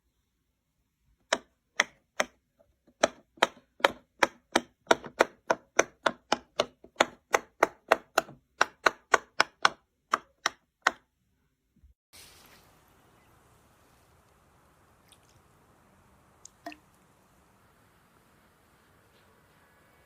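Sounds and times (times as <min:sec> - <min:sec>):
faint hiss: 0:12.1 - 0:20.0.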